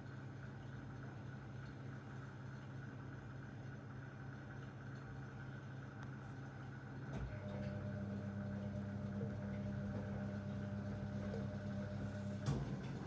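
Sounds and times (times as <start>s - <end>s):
washing machine motor hum: 3.2s - 13.0s.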